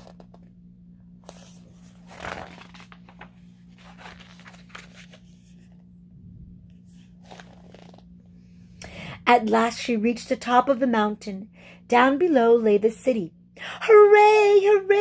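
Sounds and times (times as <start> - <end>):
book pages rustling: 0.0 - 0.5, 1.2 - 5.9, 6.7 - 8.2
faint low hum: 0.0 - 15.0.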